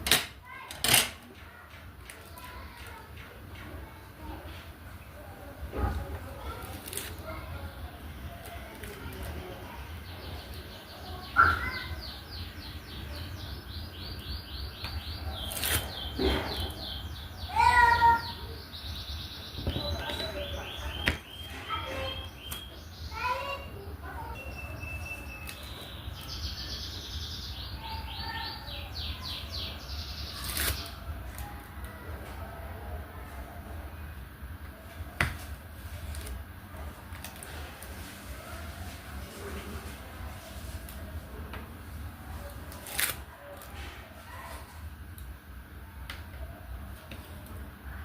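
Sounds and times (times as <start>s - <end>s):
bird chirping: 9.8s - 30.9s.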